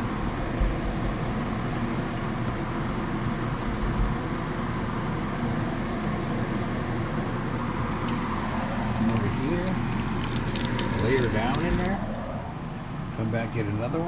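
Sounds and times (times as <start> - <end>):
cutlets sizzling in hot oil: 9.0 - 12.1.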